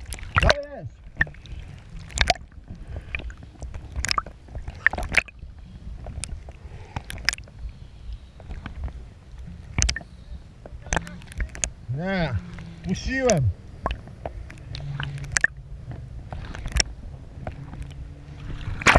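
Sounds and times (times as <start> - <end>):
water splashing and slapping: 0.0 - 18.9
jet ski engine drone: 9.0 - 18.9.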